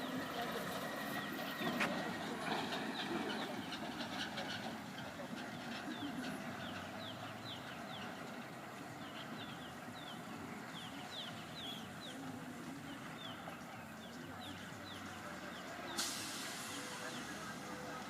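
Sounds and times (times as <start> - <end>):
birds chirping: 0.0 - 18.0
steady background noise: 0.0 - 18.0
sharp hiss: 16.0 - 17.8.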